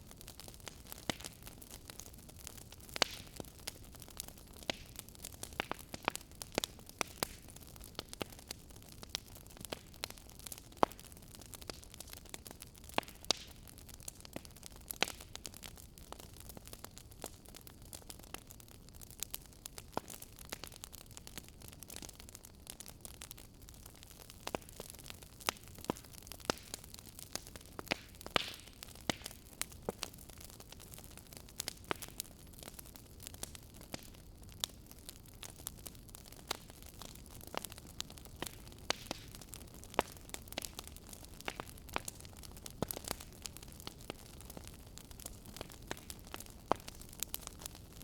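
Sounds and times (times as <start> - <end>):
wood fire crackling: 0.0 - 48.0.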